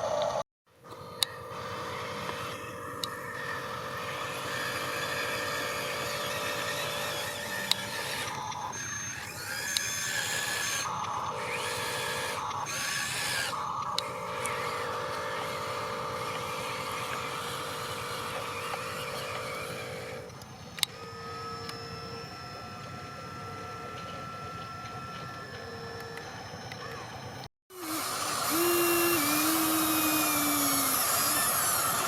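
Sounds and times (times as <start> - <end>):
small electric motors whining: 0.0 - 32.0
sharp clicks: 9.5 - 11.2.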